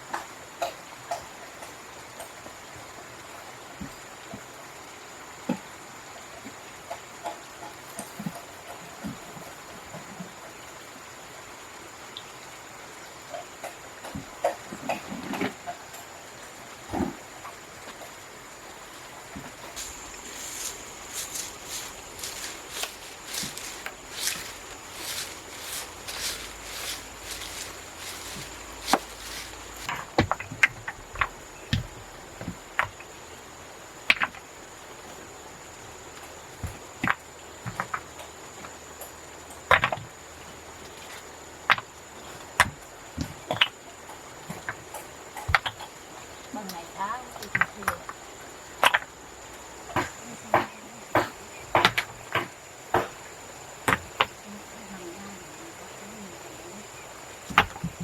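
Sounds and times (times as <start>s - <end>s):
short knocks and scrapes: 19.3s - 30.4s.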